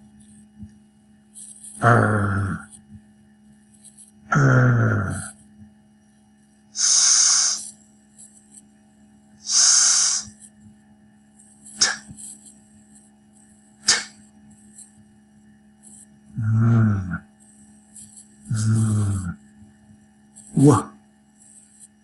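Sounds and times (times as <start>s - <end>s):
man saying consonant sounds: 20.6s - 21.0s.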